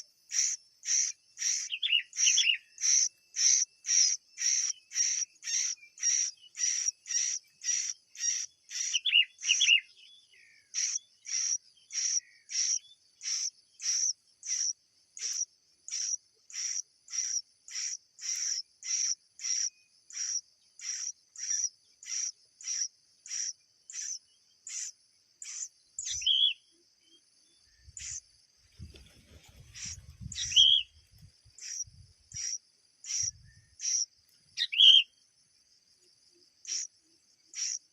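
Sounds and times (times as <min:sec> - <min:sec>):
short bird calls: 0:00.0 - 0:35.2, 0:36.6 - 0:37.9.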